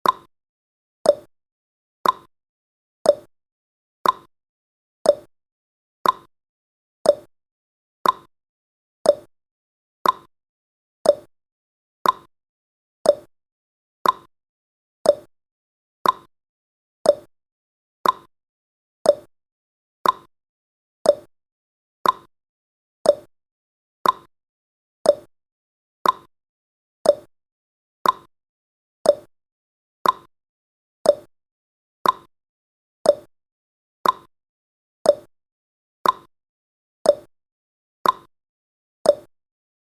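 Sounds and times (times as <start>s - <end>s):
clock ticking: 2.0s - 2.3s, 6.0s - 6.3s, 8.0s - 8.3s, 10.0s - 10.3s, 12.0s - 12.3s, 14.0s - 14.3s, 15.1s - 15.3s, 16.0s - 16.3s, 18.0s - 18.3s, 20.0s - 20.3s, 21.1s - 21.3s, 22.0s - 22.3s, 24.0s - 24.3s, 25.1s - 25.3s, 26.0s - 26.3s, 27.1s - 27.3s, 28.0s - 28.3s, 29.1s - 29.3s, 30.0s - 30.3s, 31.1s - 31.3s, 32.0s - 32.3s, 34.0s - 34.3s, 36.0s - 36.3s, 38.0s - 38.3s.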